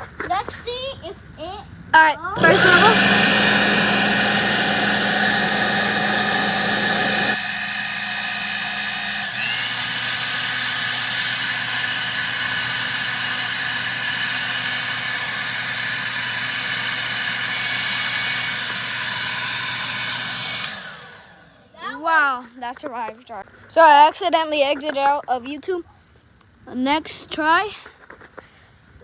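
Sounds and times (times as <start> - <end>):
leaf blower whining: 2.4 - 22.3.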